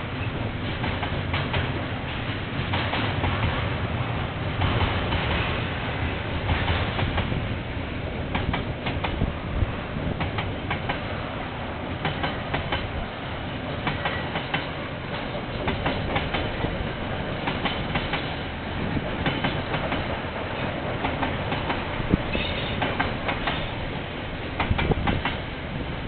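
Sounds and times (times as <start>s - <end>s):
train rumble: 0.0s - 26.0s
train wheels clattering over joints: 13.7s - 23.8s.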